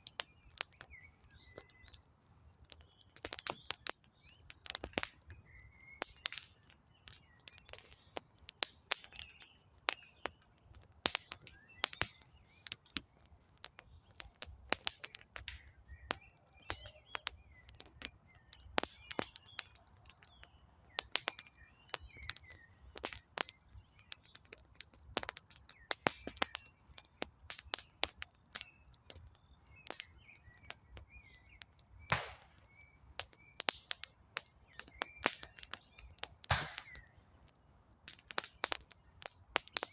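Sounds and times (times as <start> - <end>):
campfire crackling and popping: 0.0 - 39.9
small birds chirping: 0.0 - 39.9.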